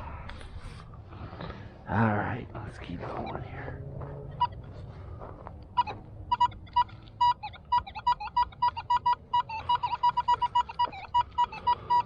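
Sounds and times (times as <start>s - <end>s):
metal detector beeping: 5.7s - 12.0s.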